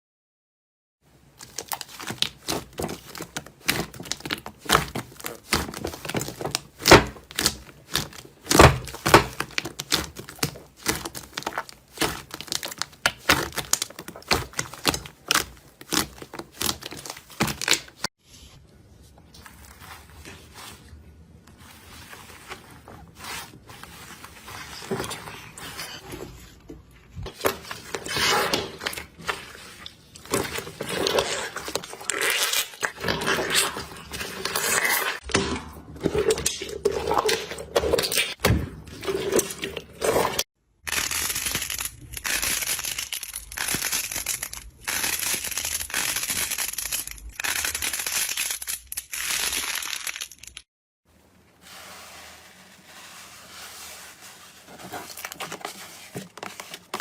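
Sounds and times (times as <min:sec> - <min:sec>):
slime squished by hands: 0:01.3 - 0:18.1.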